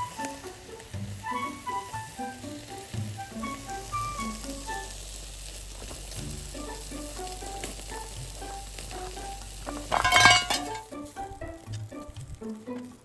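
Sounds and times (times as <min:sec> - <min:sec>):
meat sizzling on a grill: 0:00.0 - 0:13.0
clatter: 0:09.7 - 0:10.8.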